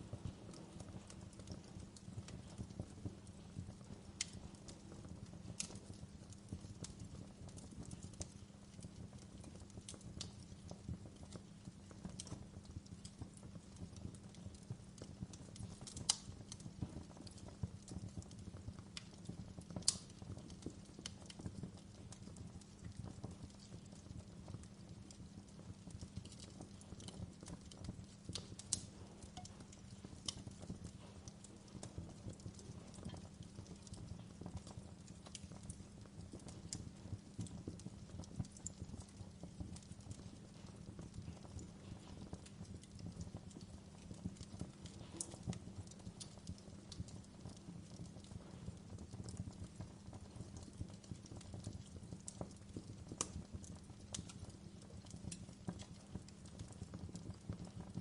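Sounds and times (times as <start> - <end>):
fire low rumble: 0.0 - 58.0
wood fire crackling: 0.0 - 58.0.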